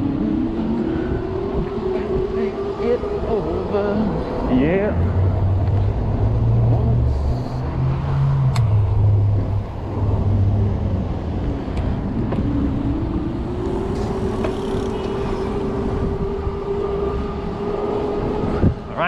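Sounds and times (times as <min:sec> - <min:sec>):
road rumble: 0:00.0 - 0:19.0
wind: 0:00.0 - 0:19.0
electric bike motor whine: 0:13.0 - 0:17.6.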